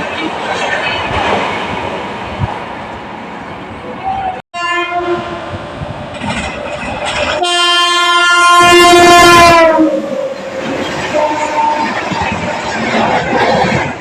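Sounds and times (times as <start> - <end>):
train rumbling on rails: 0.0 - 14.0
train horn blast: 4.5 - 5.4, 7.4 - 12.2.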